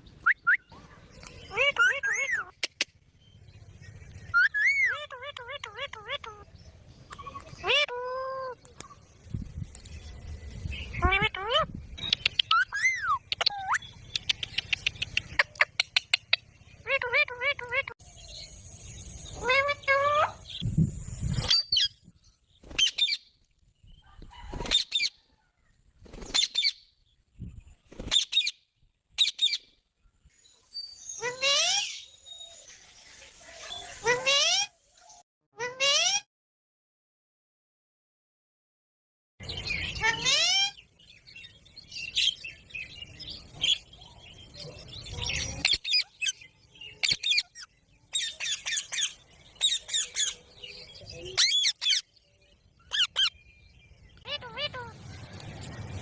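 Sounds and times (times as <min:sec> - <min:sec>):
parrot chirping: 0:01.5 - 0:02.9, 0:04.3 - 0:06.5, 0:07.1 - 0:08.6, 0:10.9 - 0:20.6, 0:45.0 - 0:53.5, 0:54.2 - 0:55.2.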